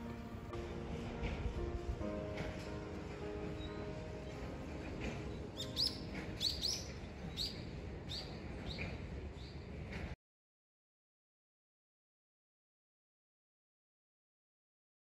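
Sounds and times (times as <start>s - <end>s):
small songbird chirping: 5.6s - 9.6s.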